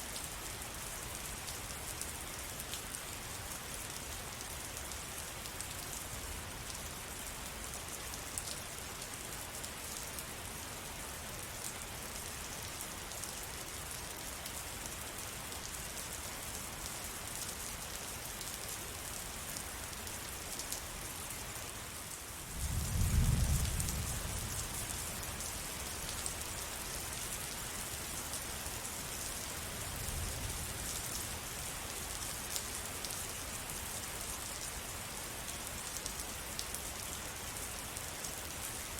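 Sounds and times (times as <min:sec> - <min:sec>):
steady rain falling: 0:00.0 - 0:38.9
low rumble of thunder: 0:22.5 - 0:25.0.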